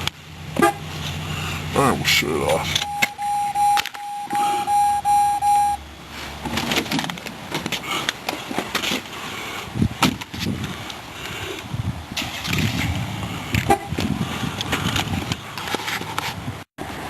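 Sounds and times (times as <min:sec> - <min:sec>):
car warning chime beeping: 0:02.4 - 0:05.8.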